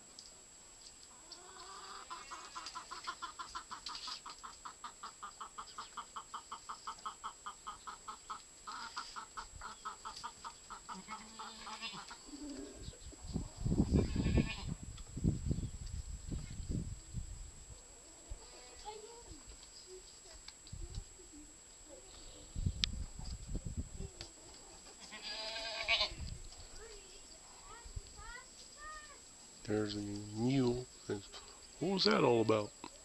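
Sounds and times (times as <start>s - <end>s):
mule braying: 10.7s - 13.0s.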